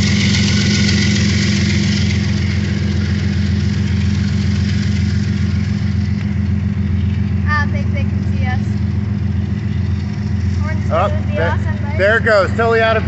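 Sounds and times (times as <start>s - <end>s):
locomotive engines throbbing: 0.0s - 13.0s.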